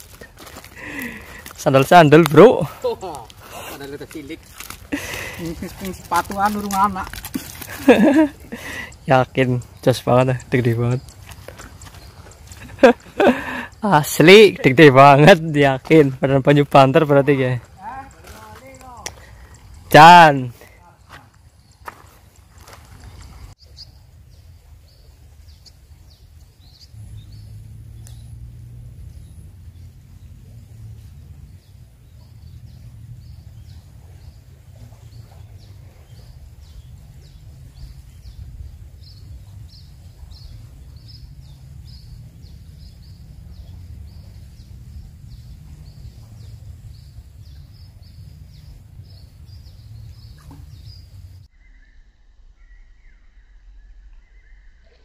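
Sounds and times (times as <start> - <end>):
small bird chirping: 2.8 - 14.8, 21.0 - 55.0
low steady rumble: 26.2 - 54.9.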